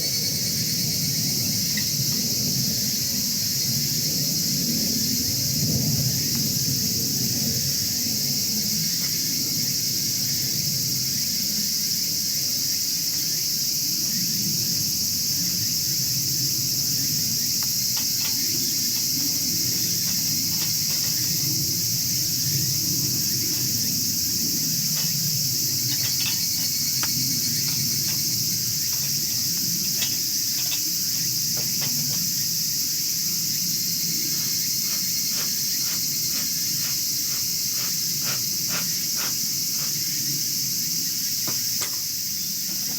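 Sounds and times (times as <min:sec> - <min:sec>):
crickets chirping: 0:00.0 - 0:42.9.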